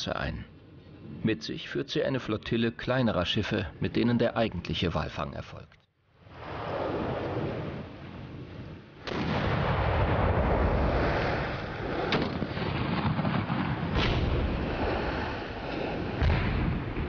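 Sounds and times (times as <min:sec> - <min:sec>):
harpoon cannon firing: 0:09.0 - 0:17.0.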